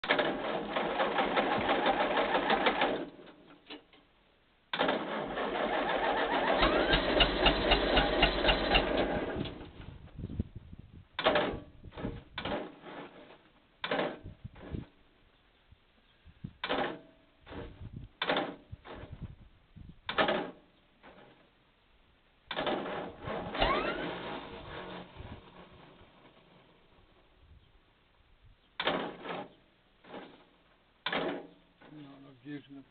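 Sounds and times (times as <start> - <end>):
engine starter motor cranking: 0.0 - 3.2, 4.7 - 10.0, 22.5 - 27.3.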